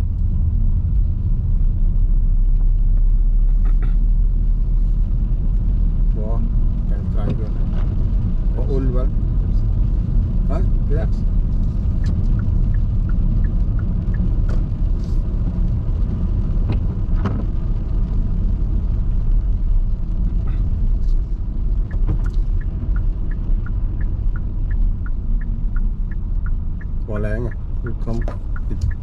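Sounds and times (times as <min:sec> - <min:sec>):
car driving on wet road: 0:00.0 - 0:29.0
light ticking: 0:09.7 - 0:16.8, 0:20.3 - 0:29.0.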